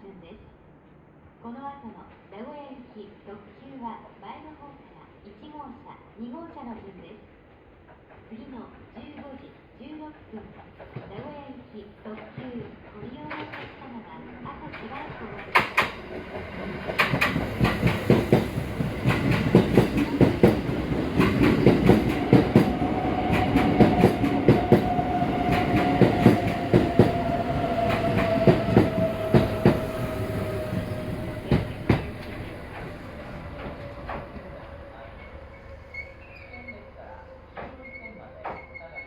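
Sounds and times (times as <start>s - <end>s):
train wheels clattering: 12.0s - 36.8s
train motor whine: 20.2s - 38.2s.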